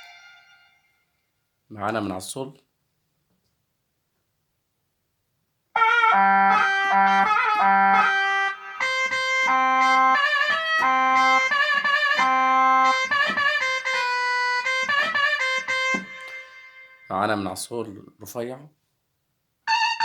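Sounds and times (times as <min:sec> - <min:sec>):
keyboard playing oriental-style melody: 0:00.0 - 0:00.9, 0:05.8 - 0:17.1.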